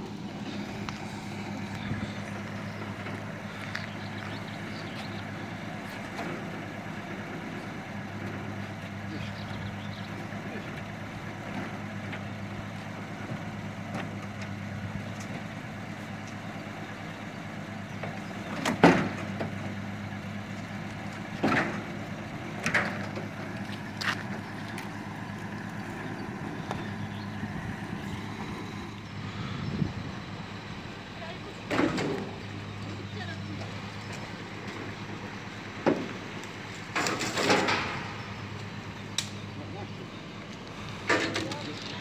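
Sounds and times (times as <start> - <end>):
engine idling: 0.0 - 42.0
knocks or clunks: 17.7 - 30.7, 31.5 - 39.6, 40.8 - 42.0.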